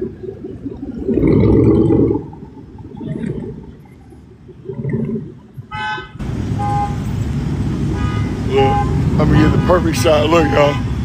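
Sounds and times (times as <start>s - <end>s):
traffic noise: 3.0s - 11.0s
car horn honking: 5.7s - 7.2s, 7.8s - 11.0s.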